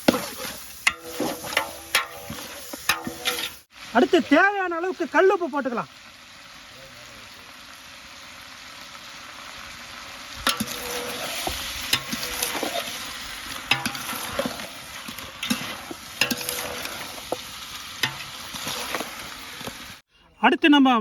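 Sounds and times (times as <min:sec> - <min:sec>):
ladle scraping and knocking pot: 0:00.0 - 0:03.6, 0:10.4 - 0:20.0
meat sizzling in a pot: 0:00.0 - 0:20.1.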